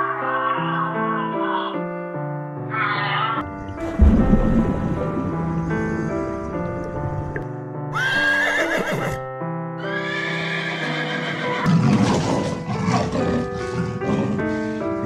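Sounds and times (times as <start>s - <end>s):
background piano music: 0.0s - 15.0s
horse neighing: 7.9s - 9.2s, 9.8s - 13.1s.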